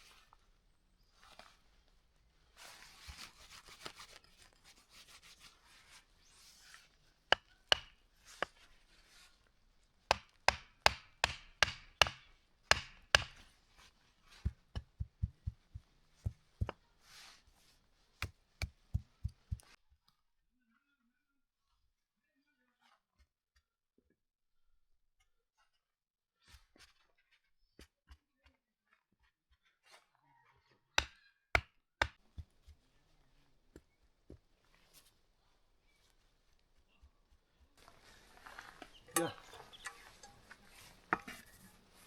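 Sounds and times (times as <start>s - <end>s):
scraping and rubbing: 2.6s - 9.5s, 13.0s - 19.8s
sharp chopping strikes: 7.4s - 7.9s, 10.1s - 13.4s.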